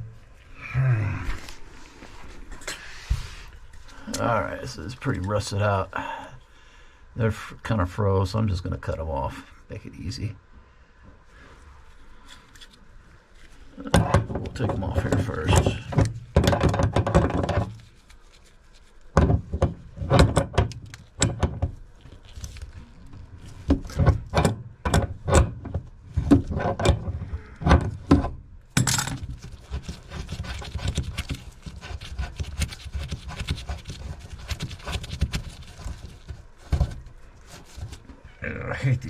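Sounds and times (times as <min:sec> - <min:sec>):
tools clanking on metal: 0:23.8 - 0:29.3
rapid clicking and scraping: 0:29.0 - 0:38.2.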